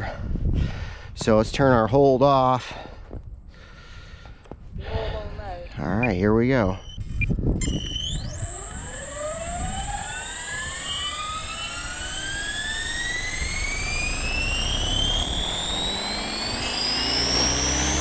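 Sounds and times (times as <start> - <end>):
helicopter motor and rotor whine: 6.0 - 18.0
steady high tone: 6.0 - 18.0.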